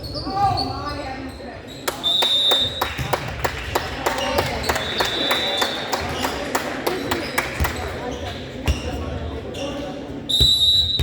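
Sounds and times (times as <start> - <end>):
sneaker squeak: 0.0 - 2.8, 7.1 - 11.0.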